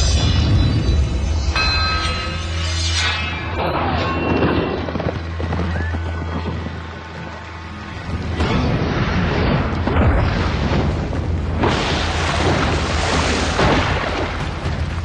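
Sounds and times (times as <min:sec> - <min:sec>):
background music: 0:00.0 - 0:15.0
heavy low rumble: 0:00.0 - 0:15.0
loud booms and rushing blasts: 0:08.0 - 0:15.0.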